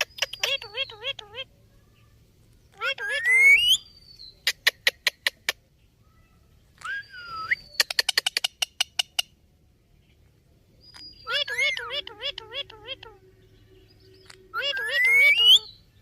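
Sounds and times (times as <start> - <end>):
parrot wavering call: 2.8 - 3.8, 14.2 - 15.8.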